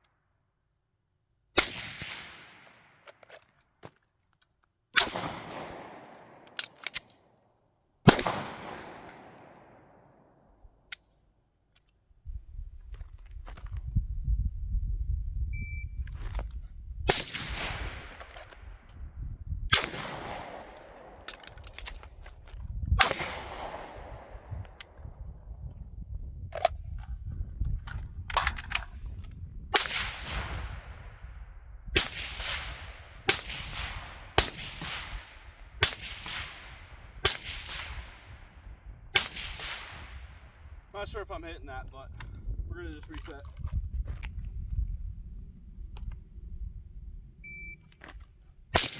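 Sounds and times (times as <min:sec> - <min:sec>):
suppressed rifle shots: 0:01.6 - 0:02.8, 0:05.0 - 0:07.1, 0:08.1 - 0:10.2, 0:17.1 - 0:18.6, 0:19.7 - 0:22.0, 0:23.0 - 0:24.5, 0:29.8 - 0:31.2, 0:32.0 - 0:38.5, 0:39.1 - 0:40.7
gunshot echo: 0:08.1 - 0:10.1, 0:19.7 - 0:21.2, 0:23.0 - 0:24.5, 0:32.0 - 0:38.4, 0:39.2 - 0:40.5.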